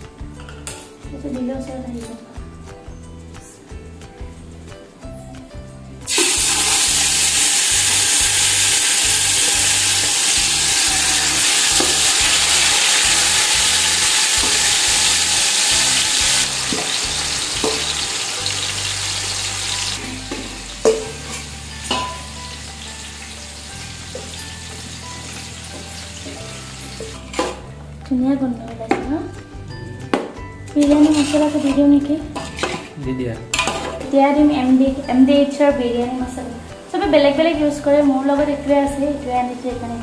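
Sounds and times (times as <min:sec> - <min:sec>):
chicken sizzling in hot oil: 0:06.1 - 0:27.4.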